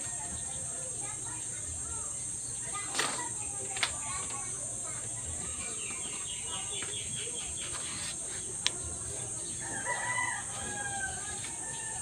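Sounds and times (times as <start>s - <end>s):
rooster crowing: 9.6s - 12.0s.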